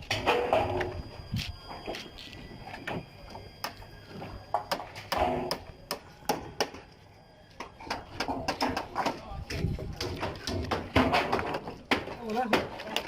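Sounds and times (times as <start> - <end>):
building work taps and knocks: 7.6 - 13.0.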